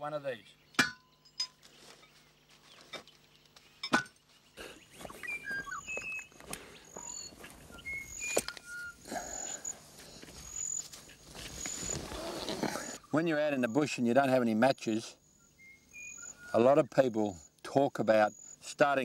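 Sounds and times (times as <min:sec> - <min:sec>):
birds chirping and whistling: 0:02.0 - 0:13.8, 0:15.2 - 0:17.5.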